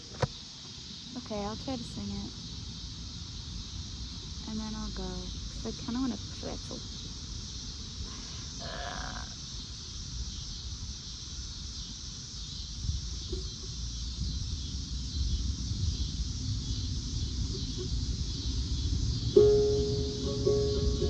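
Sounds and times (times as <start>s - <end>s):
cicadas droning: 0.0s - 21.0s
low rumble: 12.9s - 21.0s.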